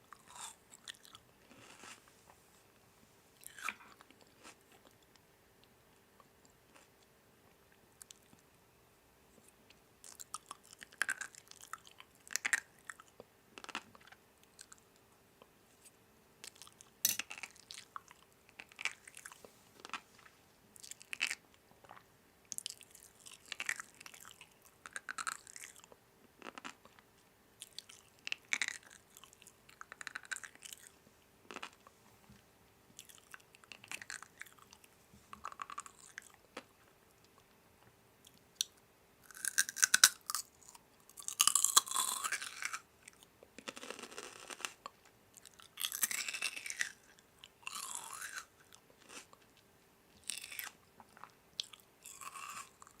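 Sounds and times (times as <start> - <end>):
person chewing crisp food: 0.0 - 2.0, 3.4 - 5.0, 22.6 - 27.0, 27.6 - 31.9, 33.0 - 36.7, 39.3 - 44.8, 45.4 - 49.4, 50.2 - 53.0
faint steady hum: 0.0 - 53.0.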